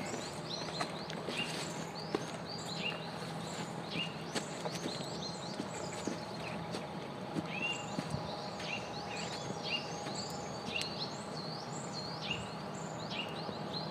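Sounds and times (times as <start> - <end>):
small birds chirping: 7.5 - 13.9.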